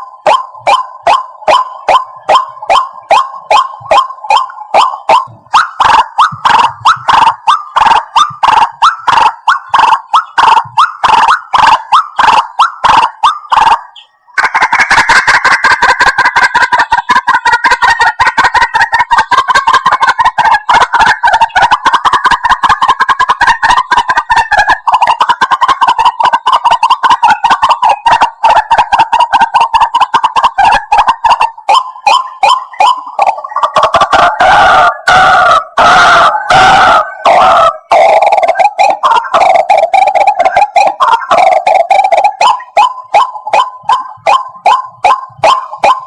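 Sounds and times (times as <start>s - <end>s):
waterhen calls: 0.0s - 46.0s.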